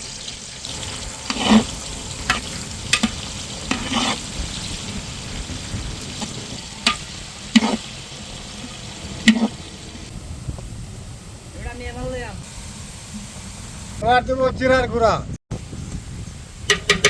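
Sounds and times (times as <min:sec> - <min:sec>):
onions sizzling in oil: 0:00.0 - 0:11.5
utensil scraping and knocking pot: 0:01.2 - 0:04.3, 0:06.1 - 0:09.6, 0:16.7 - 0:17.0.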